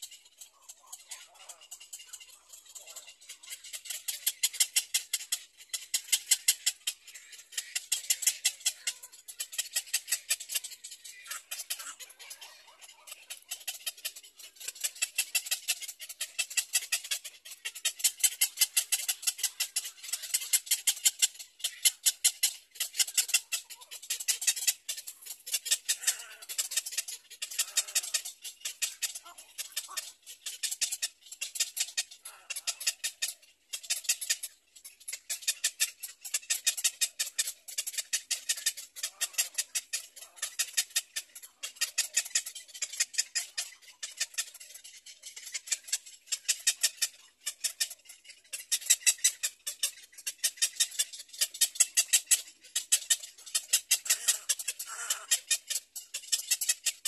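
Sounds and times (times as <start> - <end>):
bird clicking chatter: 0.0 - 57.0.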